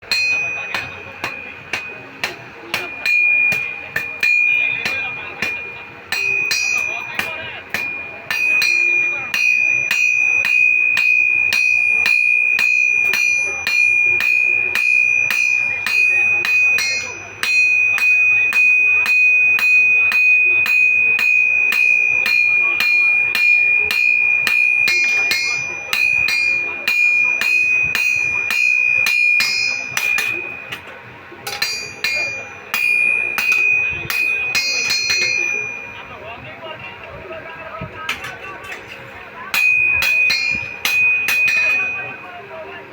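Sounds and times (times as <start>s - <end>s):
hammer striking metal on anvil: 0.0s - 36.2s, 38.1s - 42.3s.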